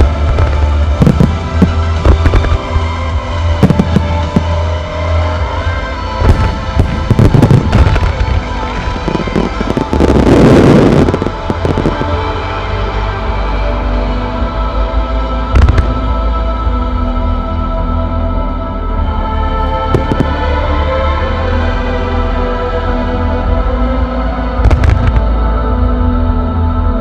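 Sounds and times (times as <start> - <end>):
fireworks bursting: 0.0 - 4.8, 6.2 - 12.4, 24.6 - 25.2
music: 0.0 - 27.0.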